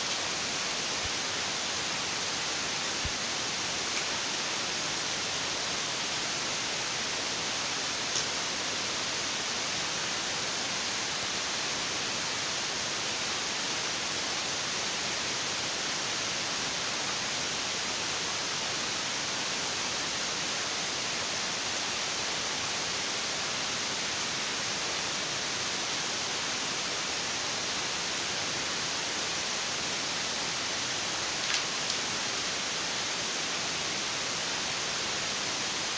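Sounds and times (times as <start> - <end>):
steady hiss: 0.0 - 35.9
faint click: 8.1 - 8.3, 31.4 - 32.0.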